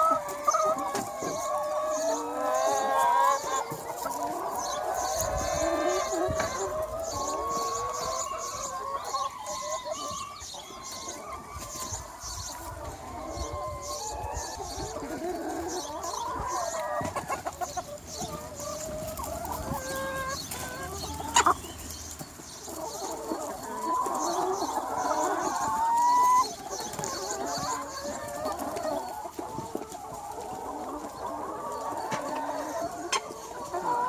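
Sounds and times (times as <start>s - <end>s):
chickens clucking and calling: 0.0s - 34.0s
drawn-out rising chicken call: 0.0s - 34.0s.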